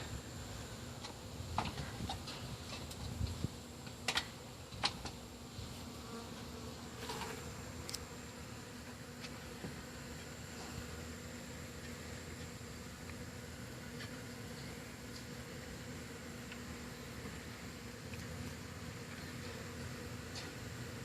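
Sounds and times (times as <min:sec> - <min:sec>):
bees buzzing: 0:03.4 - 0:21.0.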